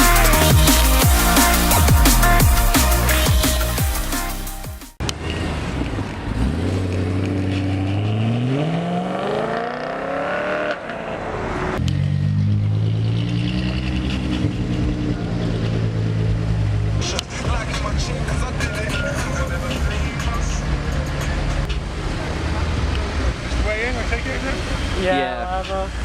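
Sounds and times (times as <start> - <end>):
car engine accelerating: 5.0 - 25.0.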